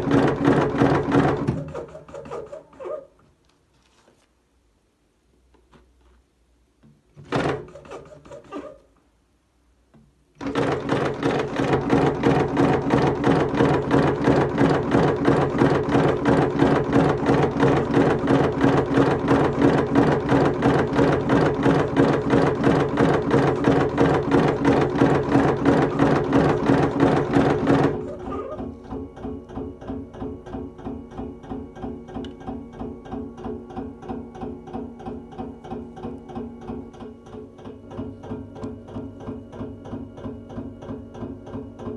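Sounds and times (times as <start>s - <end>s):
machine motor hum and clatter: 10.4s - 41.9s.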